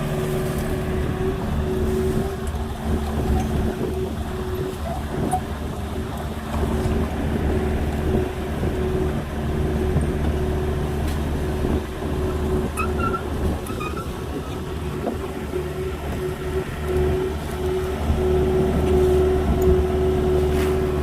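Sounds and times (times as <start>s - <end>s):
diesel engine humming: 0.0s - 21.0s
faint short squeaks: 12.7s - 14.2s.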